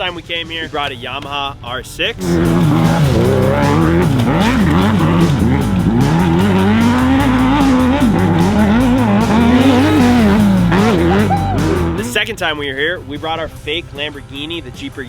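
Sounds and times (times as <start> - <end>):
vehicle engine revving: 2.2 - 12.5.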